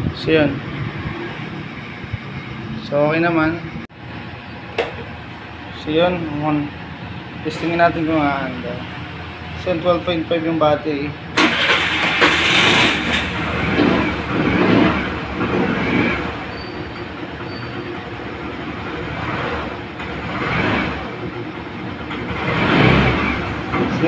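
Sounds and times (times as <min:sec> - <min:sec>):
scooter engine running: 0:11.4 - 0:24.0.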